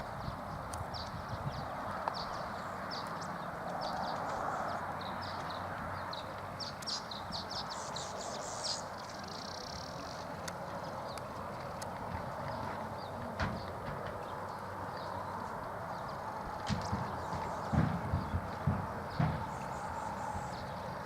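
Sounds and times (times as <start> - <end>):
horse hoofbeats: 10.6 - 20.8.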